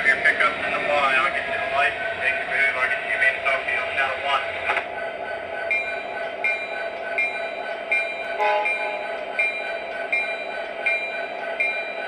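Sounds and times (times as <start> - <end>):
model train clicking on track: 0.0 - 4.9
model train toot: 8.4 - 9.5.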